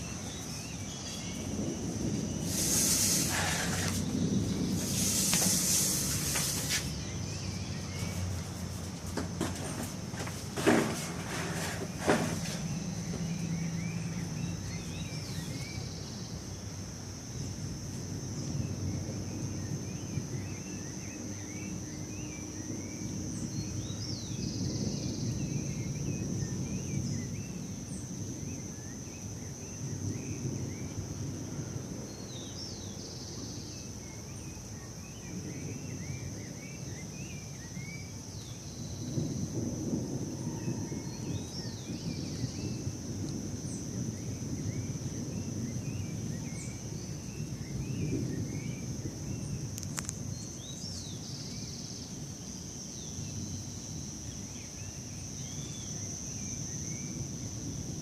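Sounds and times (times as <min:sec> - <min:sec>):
high-pitched insect drone: 0:00.0 - 0:08.6
birds chirping: 0:00.0 - 0:16.7.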